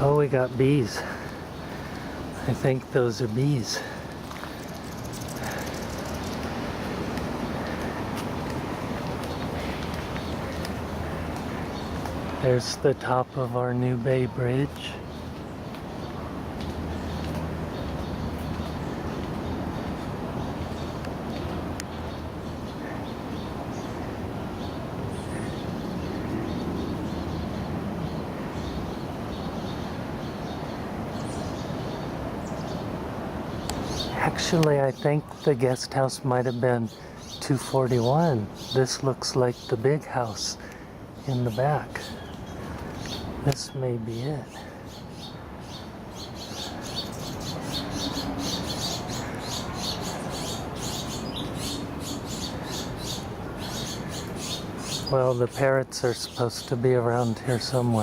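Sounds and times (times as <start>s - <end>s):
outdoor background noise: 0.0s - 58.0s
faint bird chirps: 3.5s - 6.5s
small bird chirping: 4.4s - 6.6s, 41.2s - 55.2s.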